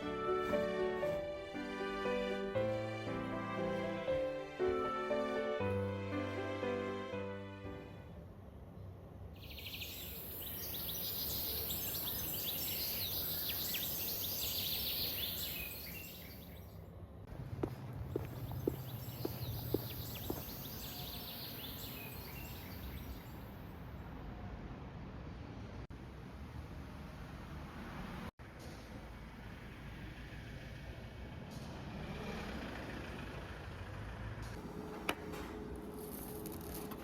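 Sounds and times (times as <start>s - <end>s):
small birds chirping: 9.4s - 16.8s, 17.6s - 23.5s.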